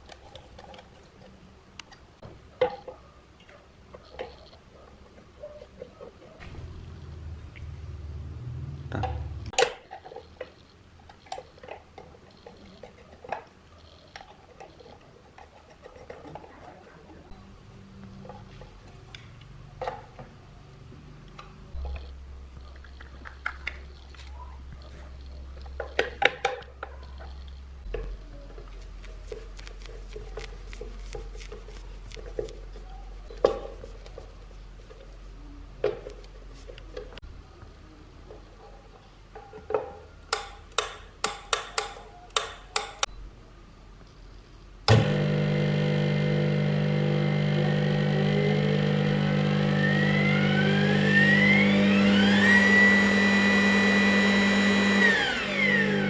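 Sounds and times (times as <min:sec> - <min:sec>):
small parts and tools clicking: 0:39.3 - 0:43.1.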